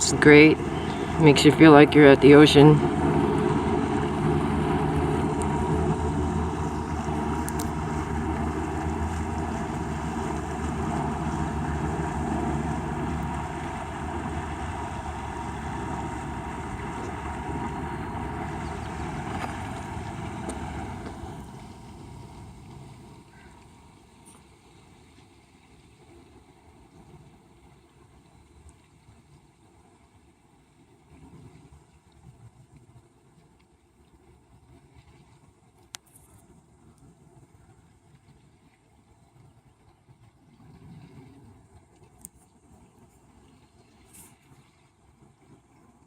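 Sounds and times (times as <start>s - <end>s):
motorboat engine running: 0.0s - 28.5s
water washing against hull: 0.0s - 46.0s.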